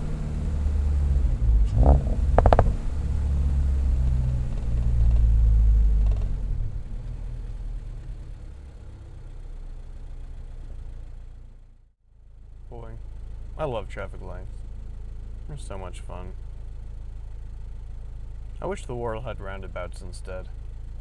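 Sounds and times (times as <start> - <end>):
car exhaust rumble: 0.0 - 21.0.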